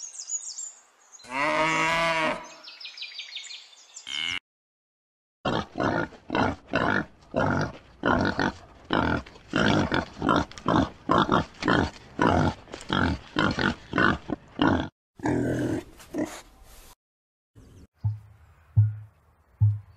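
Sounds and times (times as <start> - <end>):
pig grunting: 5.5 - 16.4.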